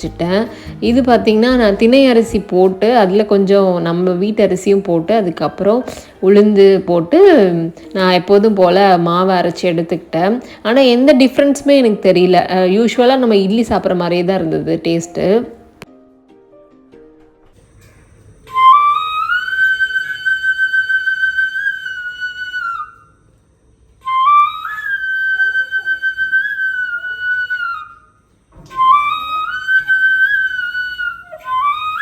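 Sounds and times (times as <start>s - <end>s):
solo flute melody: 18.5s - 23.2s, 24.0s - 32.0s.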